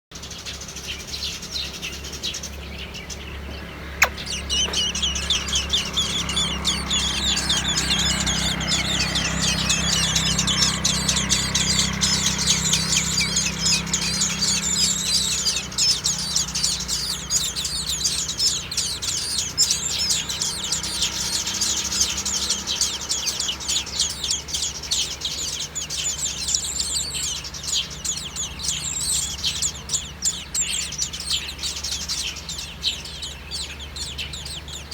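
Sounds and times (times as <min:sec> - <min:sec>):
young birds chirping: 0:00.1 - 0:34.9
sharp click: 0:04.0 - 0:04.9.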